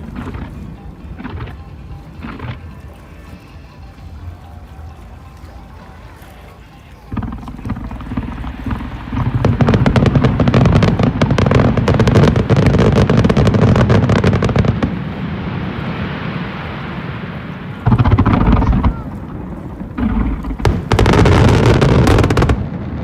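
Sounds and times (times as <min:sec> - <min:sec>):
fireworks cracking and booming: 0:00.0 - 0:01.6, 0:02.2 - 0:02.7, 0:07.1 - 0:23.0.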